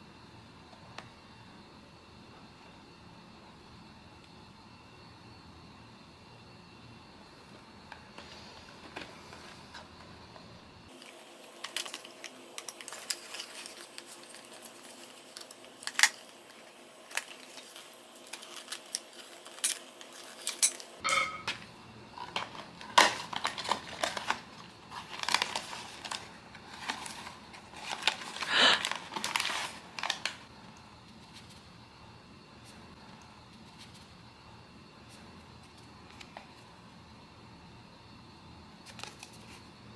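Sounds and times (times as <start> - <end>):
cardboard packaging rustling: 10.9 - 20.6, 22.2 - 30.5.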